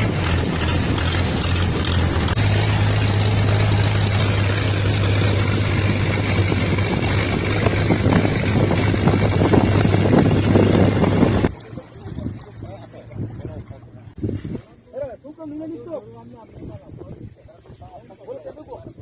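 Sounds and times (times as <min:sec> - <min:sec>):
engine running steadily: 0:00.0 - 0:14.2
wind rumbling on microphone: 0:00.0 - 0:15.1, 0:16.1 - 0:19.0.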